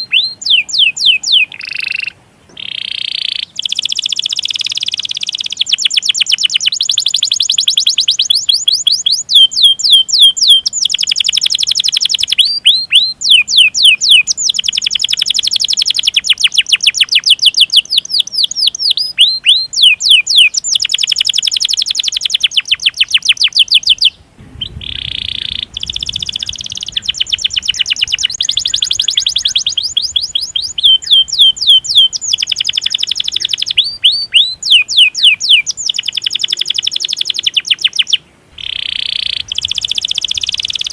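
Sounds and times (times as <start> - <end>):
canary trilling: 0.0 - 40.9
sharp canary chirps: 0.0 - 40.9
short low rumble: 24.3 - 28.8.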